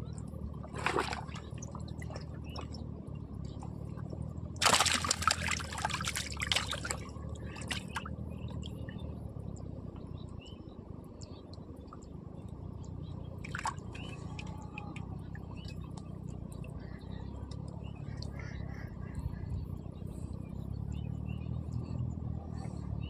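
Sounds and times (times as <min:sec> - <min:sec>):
steady low hum: 0:00.0 - 0:23.0
water splashing and dripping: 0:00.6 - 0:02.8, 0:03.6 - 0:09.0, 0:13.4 - 0:15.7.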